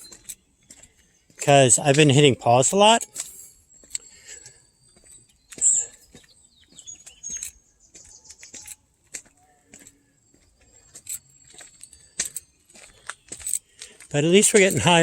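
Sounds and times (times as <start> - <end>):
footsteps crunching on dirt trail: 0.0 - 3.9, 5.0 - 15.0
high bird chirps: 5.0 - 11.0.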